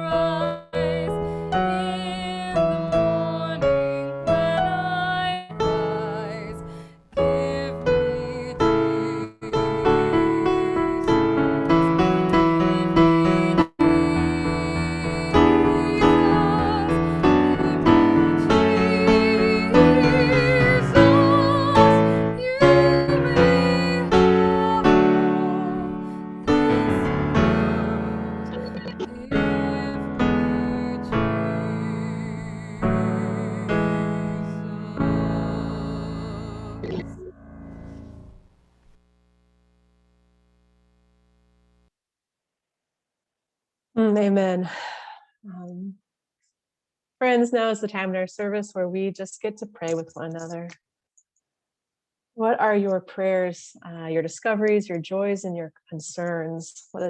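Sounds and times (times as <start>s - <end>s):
slow piano piece: 0.0s - 38.4s.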